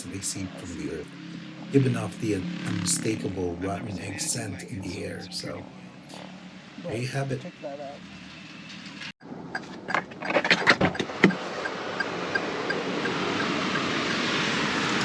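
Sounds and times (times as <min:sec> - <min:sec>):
steady rushing noise: 0:00.0 - 0:09.6.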